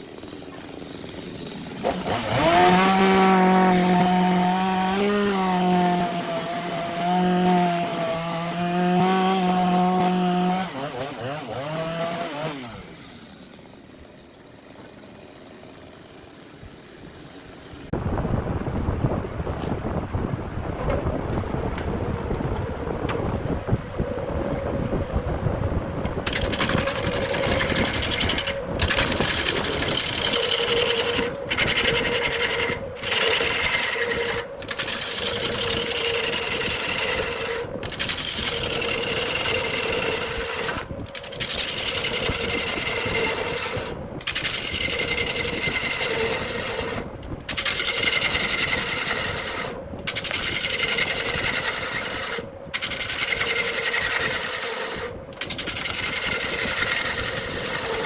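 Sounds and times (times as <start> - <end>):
gouge scraping spinning wood: 0.0 - 17.8, 26.2 - 58.0
lathe motor hum: 21.5 - 58.0.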